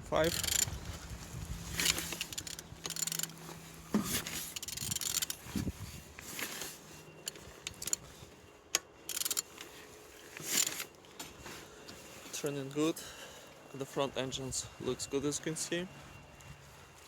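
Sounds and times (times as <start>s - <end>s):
engine mechanical clicks and scrapes: 0.1s - 11.5s.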